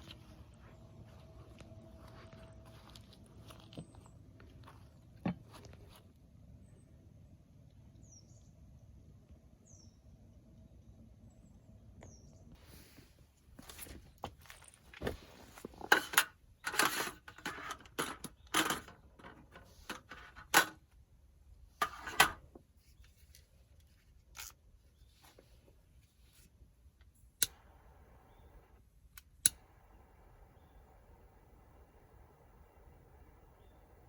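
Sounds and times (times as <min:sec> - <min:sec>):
sharp clicks: 0:27.4 - 0:30.0.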